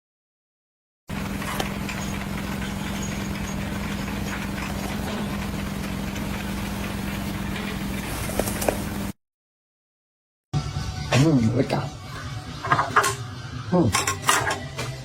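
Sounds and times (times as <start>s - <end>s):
machine engine running: 1.1s - 9.2s.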